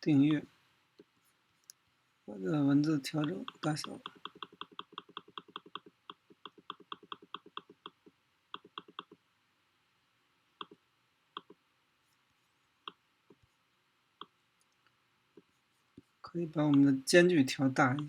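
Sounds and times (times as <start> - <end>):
computer mouse clicking: 3.2 - 9.2, 10.6 - 10.8.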